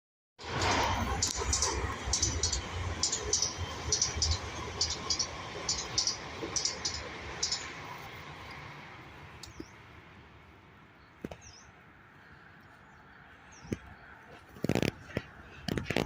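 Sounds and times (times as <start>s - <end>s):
sharp high clicks of train wheels: 0.4s - 9.8s
train rumbling past: 0.4s - 11.0s.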